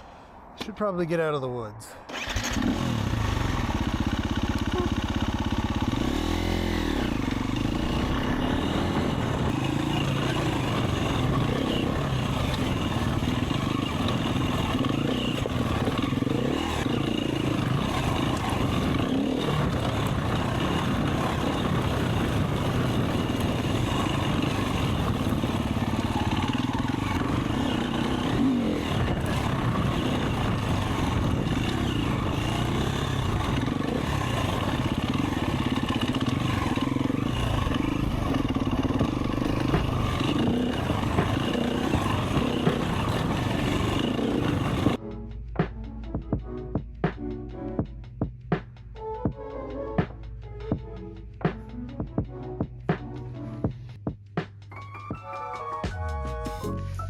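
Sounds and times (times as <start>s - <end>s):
dirt bike engine revving: 2.1s - 45.0s.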